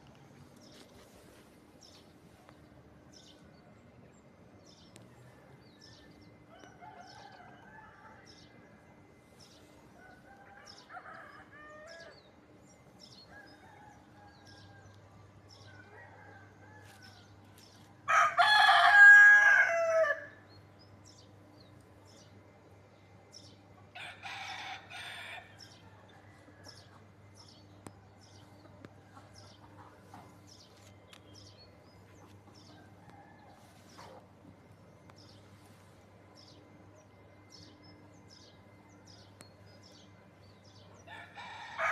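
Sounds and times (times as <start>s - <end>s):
rooster crowing: 5.8s - 8.5s, 10.0s - 12.2s, 18.1s - 20.4s, 23.9s - 27.0s, 41.0s - 41.9s.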